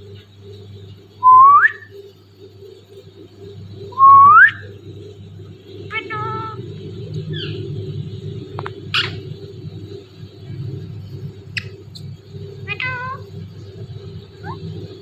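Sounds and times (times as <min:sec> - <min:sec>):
steady low hum: 0:00.0 - 0:15.0
parrot screeching and calling: 0:05.9 - 0:06.6, 0:08.9 - 0:09.2, 0:12.6 - 0:13.3.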